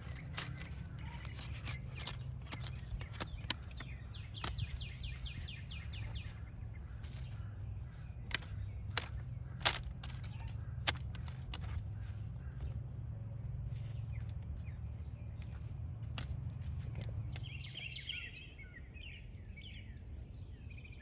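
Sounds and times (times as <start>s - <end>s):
sharp clicks: 0.0s - 5.4s, 8.3s - 11.8s
songbird chirping: 0.0s - 21.0s.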